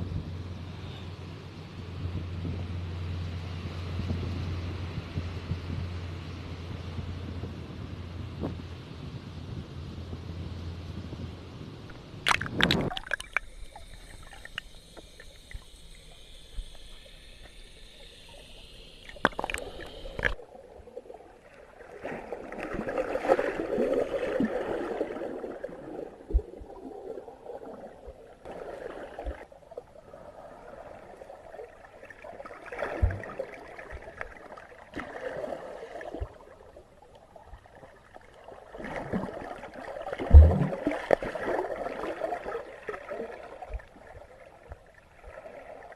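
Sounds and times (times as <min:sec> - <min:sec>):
faint high whine with clicks: 0:11.8 - 0:21.6
underwater sloshing and gurgling: 0:11.9 - 0:45.9.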